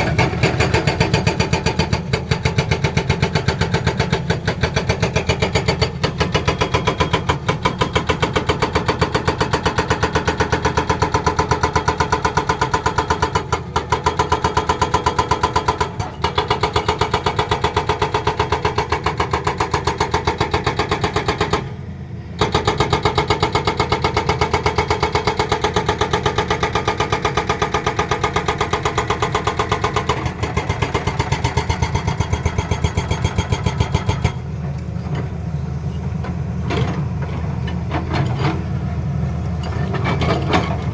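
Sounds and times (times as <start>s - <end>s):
hydraulic breaker hammering: 22.4s - 34.4s.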